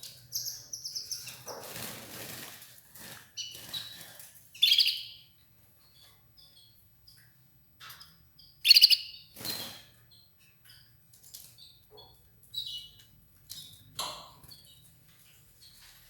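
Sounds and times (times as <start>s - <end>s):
canary chirping: 0.0s - 16.0s
wings fluttering: 1.3s - 4.4s.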